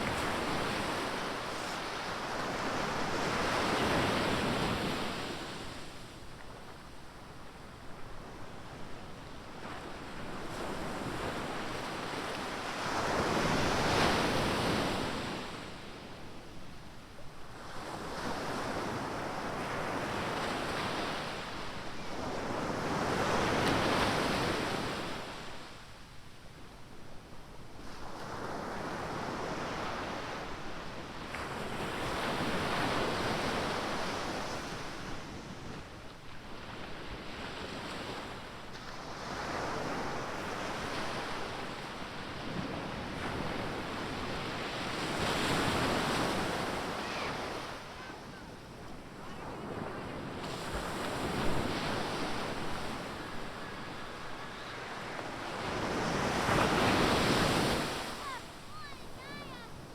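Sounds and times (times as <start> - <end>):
waves breaking: 50.4 - 59.7.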